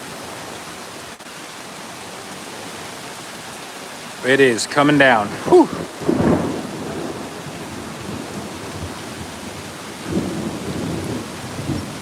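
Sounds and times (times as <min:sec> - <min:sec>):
heavy rain pouring: 0:00.0 - 0:12.0
thunder rumbling: 0:05.2 - 0:12.0.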